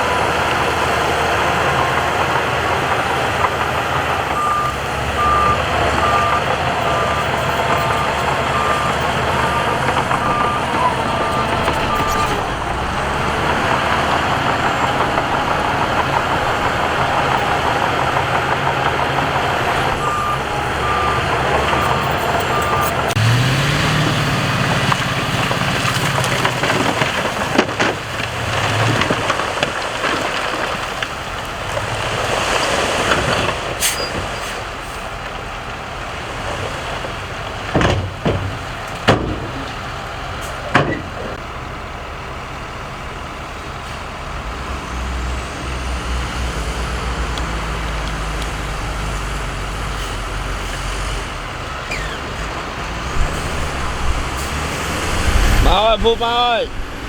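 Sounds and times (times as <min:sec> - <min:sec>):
engine revving: 0:00.0 - 0:30.5, 0:44.4 - 0:57.0
diesel machinery running: 0:00.0 - 0:57.0
reversing beeper: 0:03.5 - 0:24.2, 0:52.9 - 0:57.0
knocks and clanks: 0:37.7 - 0:39.9, 0:40.6 - 0:41.4.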